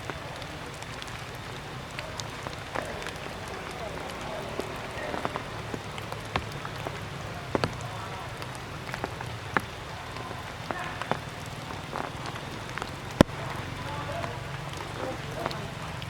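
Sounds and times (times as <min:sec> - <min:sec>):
steady hiss: 0:00.0 - 0:16.0
water drops tapping: 0:00.0 - 0:16.0.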